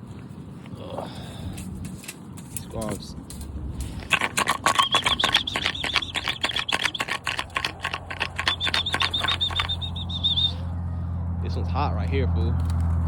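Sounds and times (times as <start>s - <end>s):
young pigeons peeping: 3.8s - 10.7s
pigeon wings flapping: 3.9s - 10.4s.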